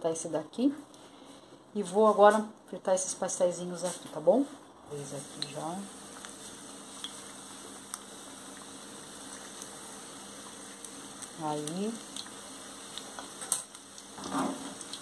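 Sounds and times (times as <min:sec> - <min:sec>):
pastries frying in hot oil: 0:03.3 - 0:15.0.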